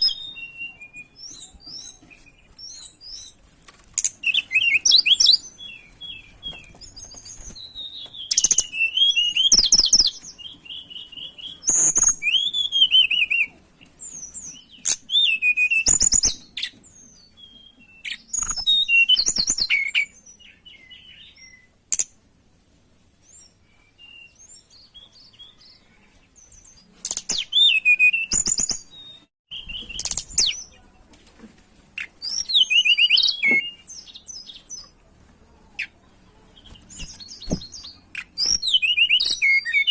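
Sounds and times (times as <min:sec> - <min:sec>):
bird whistled warbles and trills: 0:00.0 - 0:03.4, 0:04.0 - 0:22.1, 0:23.2 - 0:30.8, 0:32.0 - 0:34.9, 0:36.6 - 0:39.9.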